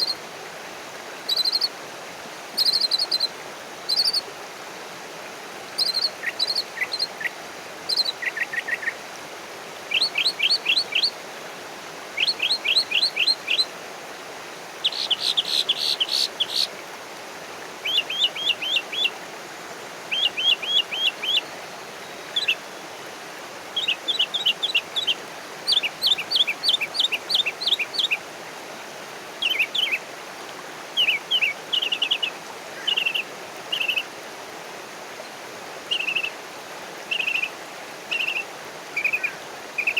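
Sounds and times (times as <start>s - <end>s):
steady background hiss: 0.0s - 39.9s
small songbirds chirping: 1.3s - 1.7s, 2.6s - 3.3s, 3.9s - 4.2s, 5.8s - 9.0s, 9.9s - 11.2s, 12.2s - 13.7s, 14.8s - 16.8s, 17.8s - 19.2s, 20.1s - 23.1s, 23.8s - 28.2s, 29.3s - 30.1s, 30.9s - 34.1s, 35.9s - 36.4s, 37.0s - 39.9s.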